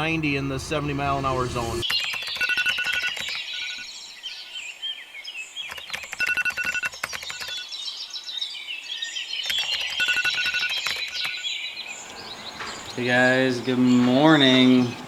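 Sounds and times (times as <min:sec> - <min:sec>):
evenly pitched piping notes: 0:00.0 - 0:01.8
birds singing: 0:00.0 - 0:02.4, 0:07.6 - 0:15.0.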